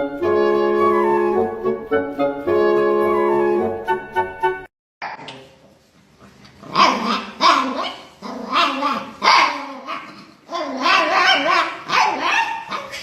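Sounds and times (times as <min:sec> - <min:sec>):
dog barking: 0:06.8 - 0:10.1, 0:10.7 - 0:13.0.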